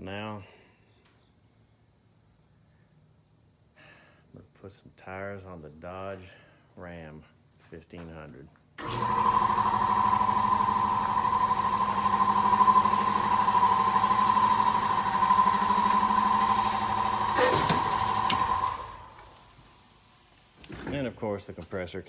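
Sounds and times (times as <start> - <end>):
air compressor humming: 8.8 - 20.8.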